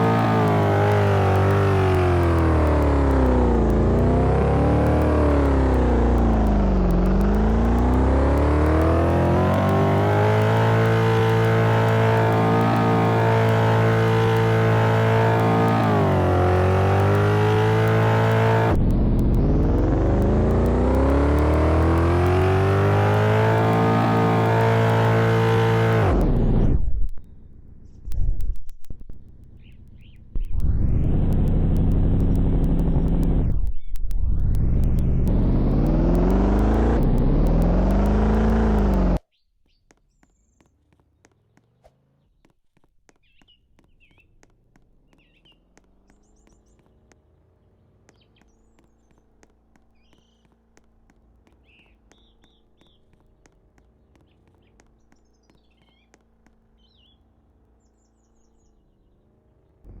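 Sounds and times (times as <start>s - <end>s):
car engine revving: 0.0s - 39.2s, 43.8s - 60.0s
faint engine hum: 0.0s - 39.2s, 43.2s - 60.0s
birds chirping: 29.5s - 30.6s, 45.0s - 47.0s, 47.6s - 60.0s.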